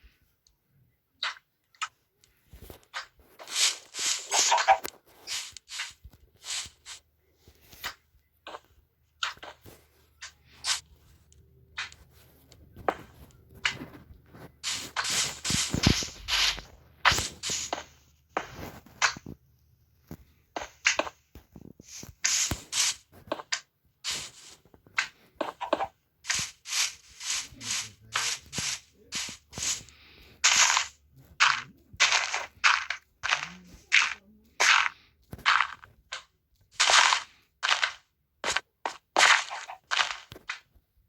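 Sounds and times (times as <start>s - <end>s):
rubbing and scraping strokes: 3.0s - 7.0s, 13.0s - 19.2s, 21.8s - 36.2s.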